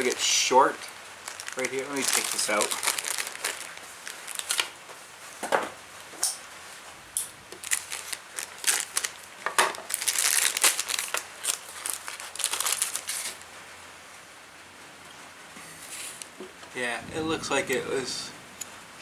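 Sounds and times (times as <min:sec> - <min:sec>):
plastic packaging crinkling: 0:00.0 - 0:04.9, 0:07.4 - 0:13.6.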